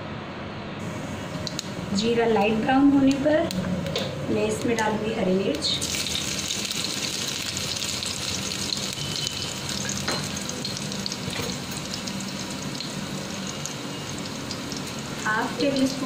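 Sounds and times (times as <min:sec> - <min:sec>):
food sizzling in a pan: 0:05.8 - 0:16.0
sharp pop of frying oil: 0:10.0 - 0:10.4.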